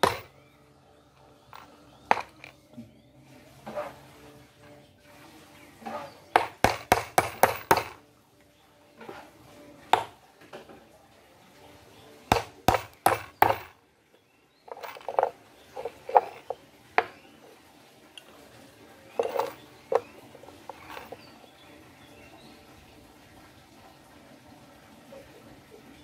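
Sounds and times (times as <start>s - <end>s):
hammer striking nails into wood: 0.0s - 0.3s, 6.4s - 8.0s, 10.0s - 10.2s, 12.3s - 13.7s
wooden pieces knocking on workbench: 0.0s - 0.3s, 1.5s - 2.6s, 6.4s - 8.0s, 10.0s - 10.2s, 12.3s - 13.8s, 14.7s - 17.2s, 19.2s - 21.2s.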